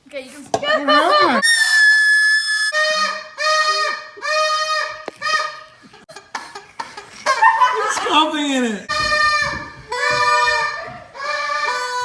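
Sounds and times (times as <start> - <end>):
party horn blowing: 1.4 - 5.8, 8.9 - 12.0.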